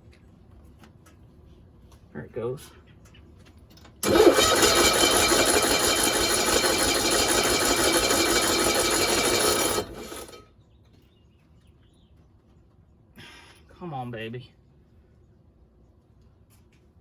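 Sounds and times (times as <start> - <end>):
small engine running then stalling: 4.0 - 10.4.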